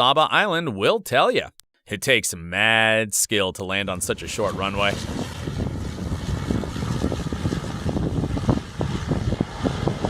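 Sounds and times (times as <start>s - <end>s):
aircraft landing rumble: 3.6s - 10.0s
wind buffeting microphone: 3.9s - 10.0s.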